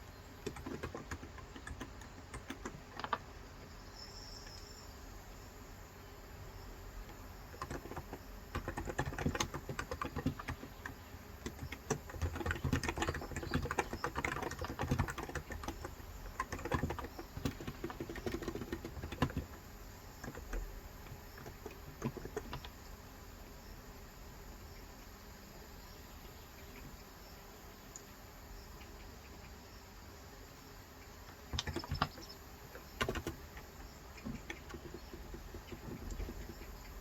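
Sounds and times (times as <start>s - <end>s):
keyboard typing: 0.4s - 3.3s, 7.0s - 19.6s, 20.2s - 22.8s, 31.3s - 37.0s.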